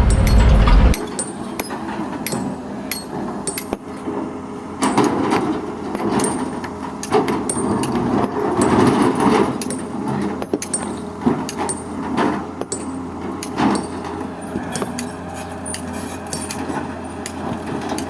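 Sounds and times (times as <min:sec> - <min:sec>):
metallic clanks and knocks: 0:00.0 - 0:01.3
excavator engine rumble: 0:00.0 - 0:18.0.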